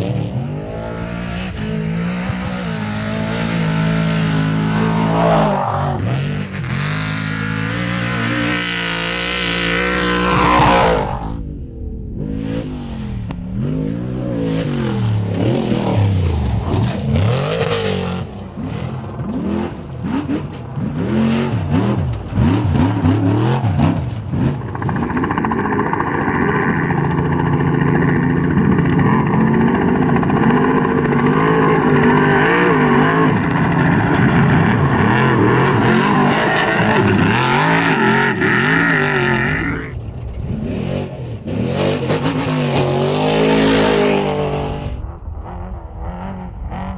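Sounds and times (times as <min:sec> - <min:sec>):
truck engine revving hard: 0:00.0 - 0:11.4, 0:12.2 - 0:45.0.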